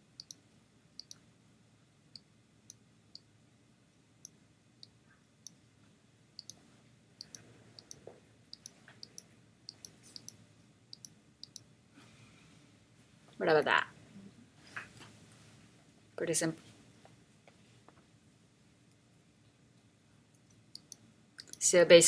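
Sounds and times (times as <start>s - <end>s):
computer mouse clicking: 0.2s - 0.4s, 1.0s - 1.2s, 6.4s - 6.6s, 7.2s - 11.6s, 20.4s - 21.6s.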